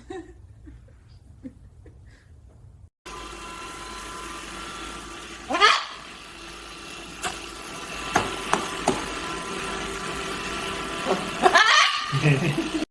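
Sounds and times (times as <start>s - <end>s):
steady background hum: 0.0s - 12.8s
parrot rising call: 5.5s - 6.0s, 11.1s - 12.2s.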